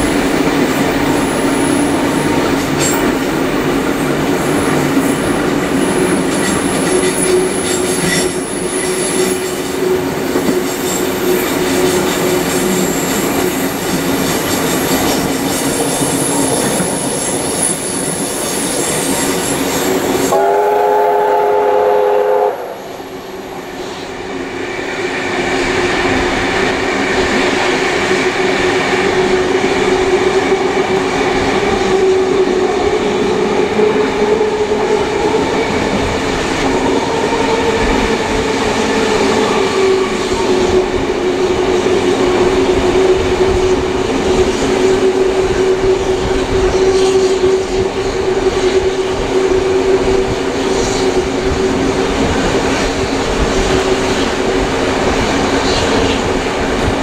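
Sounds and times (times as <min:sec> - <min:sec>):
train carriages running on track: 0:00.0 - 0:57.0
high wheel squeal: 0:15.6 - 0:20.4
steam whistle chord: 0:20.3 - 0:23.1.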